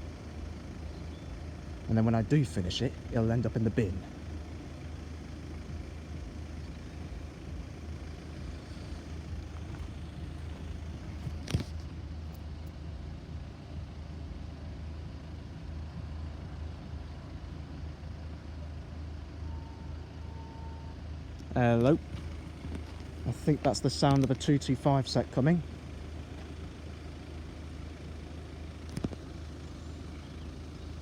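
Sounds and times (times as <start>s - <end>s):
vehicle noise rumble: 0.0s - 31.0s
faint steady tone: 12.4s - 22.1s.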